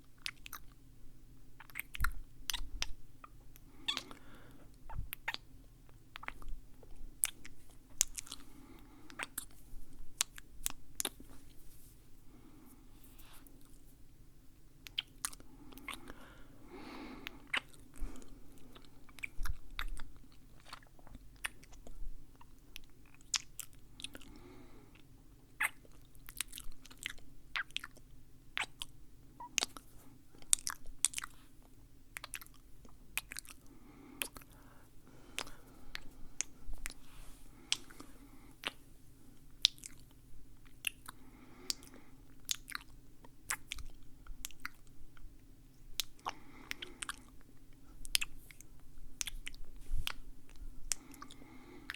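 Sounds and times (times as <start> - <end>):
mouth chewing and crunching: 0.0 - 0.8, 1.6 - 11.3, 14.8 - 16.2, 16.8 - 38.8, 39.4 - 51.9
soft breaths: 2.1 - 5.2, 6.2 - 14.1, 15.3 - 20.8, 23.7 - 25.1, 29.7 - 39.6, 41.0 - 42.4, 46.0 - 51.9.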